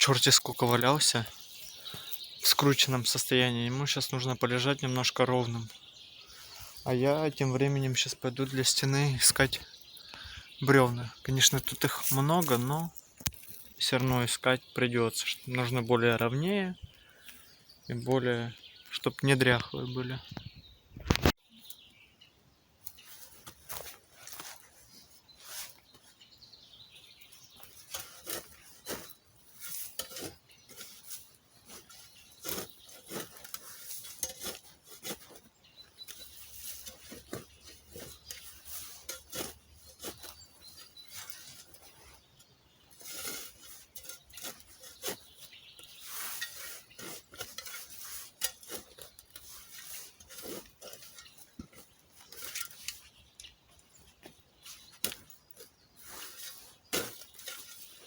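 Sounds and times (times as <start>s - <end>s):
twigs cracking: 0.0s - 3.3s, 5.4s - 14.3s, 21.0s - 21.9s, 27.2s - 58.0s
footsteps through dry undergrowth: 0.0s - 4.7s, 5.4s - 19.1s, 22.8s - 58.0s
branches brushing: 0.0s - 19.6s, 22.8s - 58.0s.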